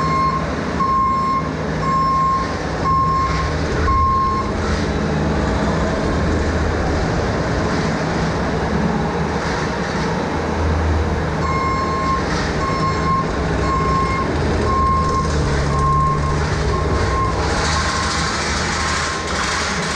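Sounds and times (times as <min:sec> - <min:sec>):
backup alarm beeping: 0:00.0 - 0:04.5, 0:11.4 - 0:18.1
heavy vehicle engine running: 0:00.0 - 0:19.9.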